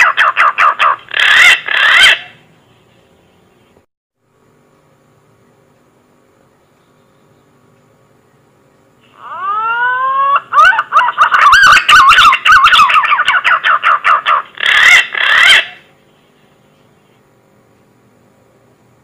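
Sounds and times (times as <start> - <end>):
pigeon whistling song: 9.2 - 15.8.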